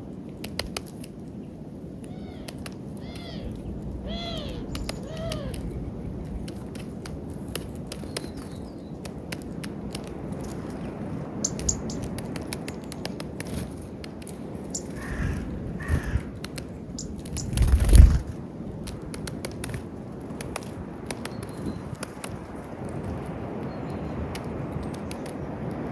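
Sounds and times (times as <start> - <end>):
bird harsh calls: 2.1 - 6.3, 14.7 - 16.3
sharp ticks: 4.6 - 15.3, 15.9 - 18.2
low rumble: 17.4 - 18.4.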